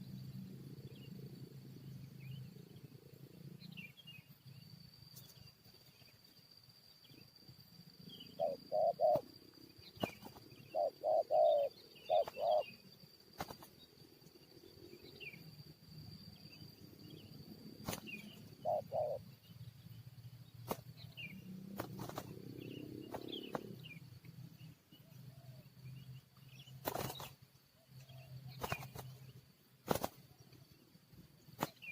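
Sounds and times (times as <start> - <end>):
high insect drone: 0.0 - 31.9
small birds chirping: 0.0 - 31.9
doves cooing: 8.3 - 9.3, 10.0 - 12.8, 17.8 - 19.3.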